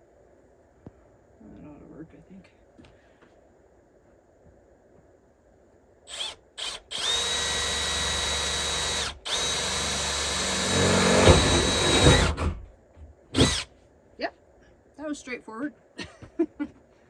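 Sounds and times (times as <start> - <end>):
power drill boring through metal: 6.1 - 12.6, 13.4 - 13.7.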